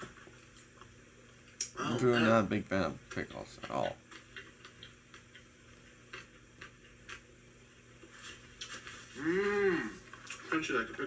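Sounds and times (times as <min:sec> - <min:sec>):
person chewing crunchy food: 0:03.6 - 0:07.3
person humming: 0:09.2 - 0:10.0.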